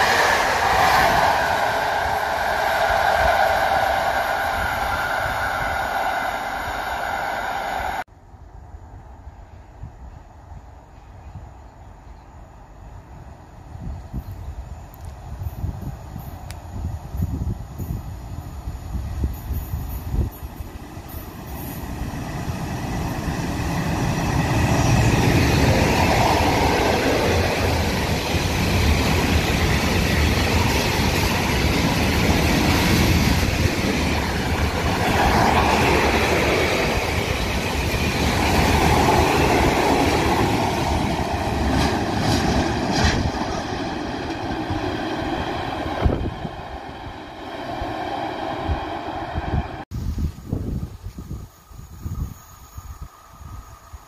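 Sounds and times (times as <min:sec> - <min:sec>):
freight train passing: 0:00.0 - 0:54.0.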